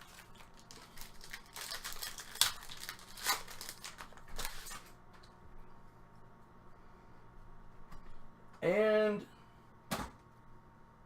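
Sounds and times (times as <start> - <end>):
wrapper crinkling and tearing: 0.0 - 5.0.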